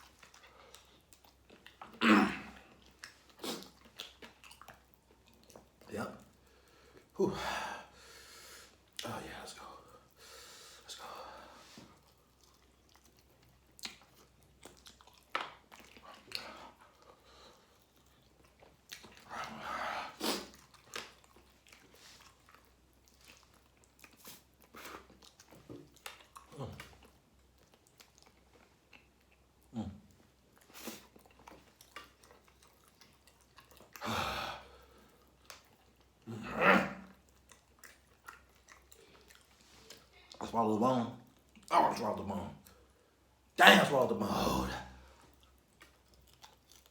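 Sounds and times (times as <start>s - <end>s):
person chewing and crunching: 0.0s - 7.1s, 11.6s - 36.3s, 37.0s - 40.4s, 45.0s - 46.9s.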